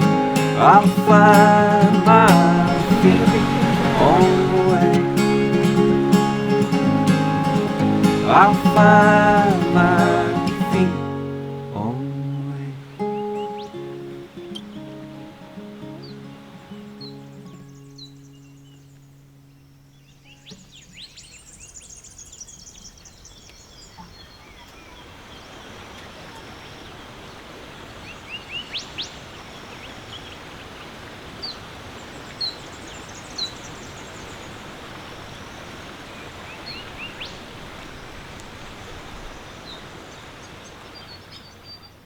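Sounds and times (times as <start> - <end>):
steady rushing noise: 0.0 - 10.9
small birds chirping: 0.0 - 42.0.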